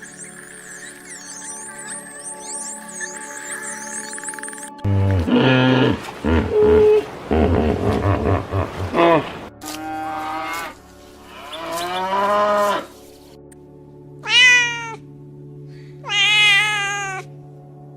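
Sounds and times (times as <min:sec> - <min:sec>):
cat meowing: 0:14.2 - 0:15.0, 0:16.0 - 0:17.3.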